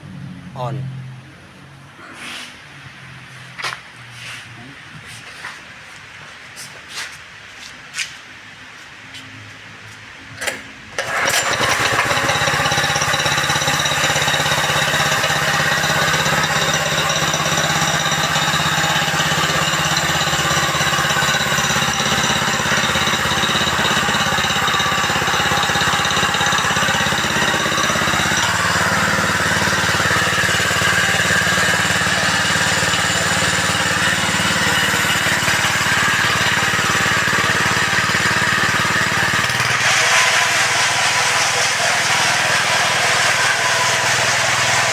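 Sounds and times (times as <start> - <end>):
petrol engine running: 10.4 - 44.9
recoil starter pull: 10.4 - 44.9.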